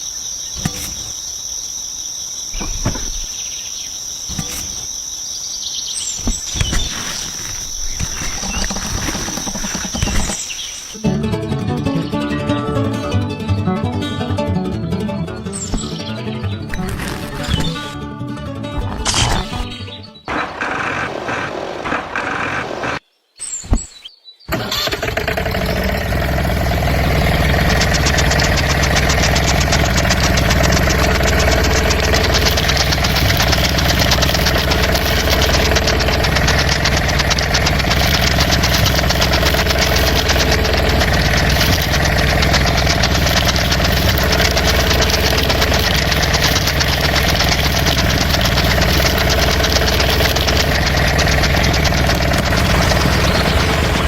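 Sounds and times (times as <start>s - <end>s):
tractor engine idling: 6.3s - 11.3s, 20.3s - 23.0s, 24.5s - 54.0s.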